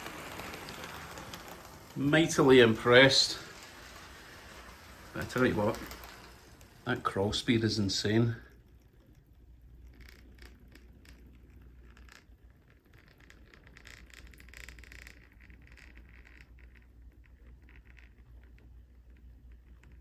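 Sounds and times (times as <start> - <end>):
model train wheels clicking on track: 0.0 - 8.9.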